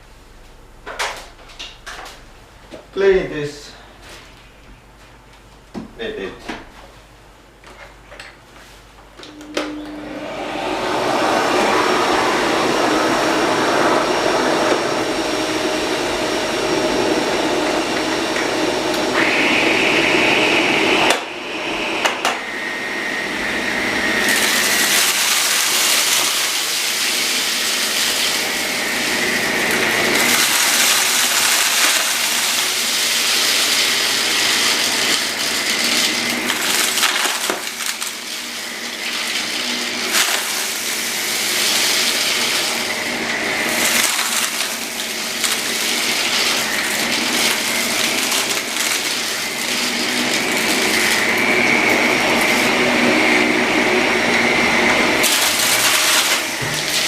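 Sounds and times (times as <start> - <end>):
vacuum cleaner running: 8.6 - 57.0.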